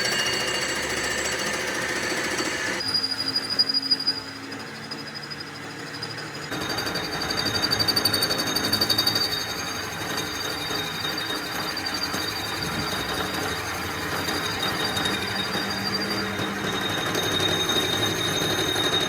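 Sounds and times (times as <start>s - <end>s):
fast pulsing: 6.5s - 19.0s
machine running: 6.5s - 19.0s.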